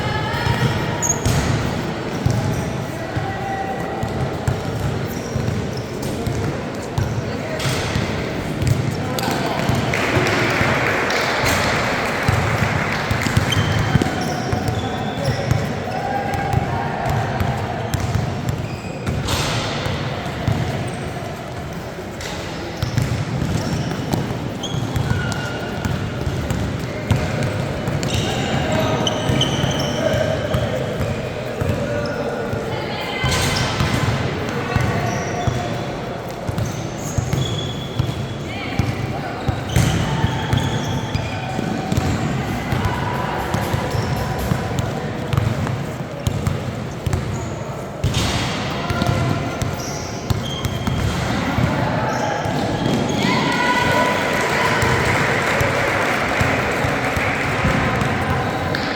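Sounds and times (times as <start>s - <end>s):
crowd voices: 0.0s - 58.9s
basketball bouncing on court: 0.4s - 3.0s, 4.0s - 21.1s, 22.2s - 31.9s, 33.2s - 35.8s, 36.4s - 53.3s, 54.7s - 55.3s, 56.3s - 58.9s
short high squeaks: 49.7s - 50.9s.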